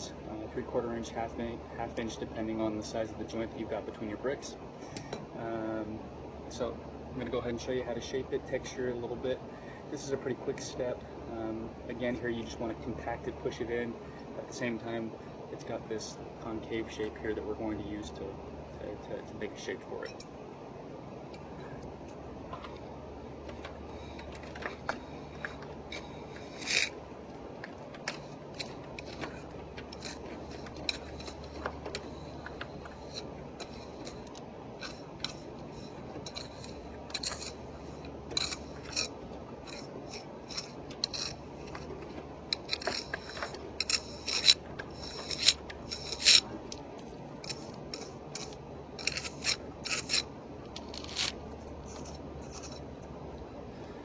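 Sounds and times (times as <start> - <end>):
jointer scraping mortar: 23.5 - 27.0, 27.7 - 52.9.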